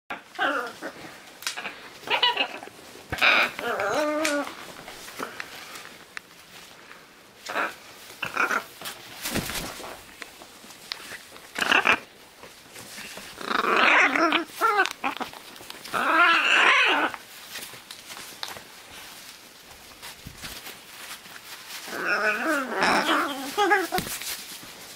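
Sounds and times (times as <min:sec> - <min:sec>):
macaws giving harsh raspy calls: 0:01.5 - 0:04.4, 0:11.6 - 0:12.1.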